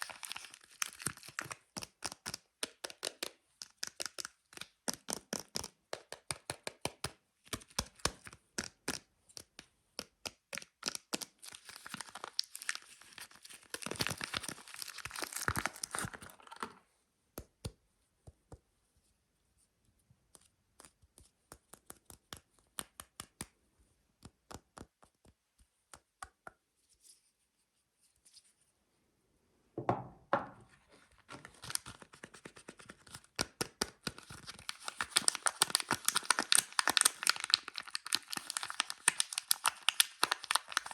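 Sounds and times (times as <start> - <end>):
packaging tearing and crinkling: 0.0 - 1.6, 10.8 - 16.7, 31.3 - 40.9.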